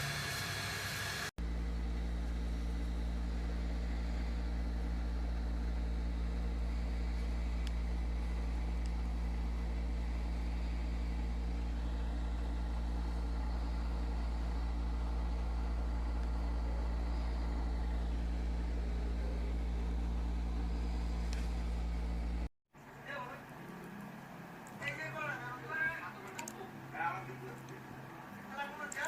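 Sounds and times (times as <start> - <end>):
low mechanical drone: 0.0 - 29.0.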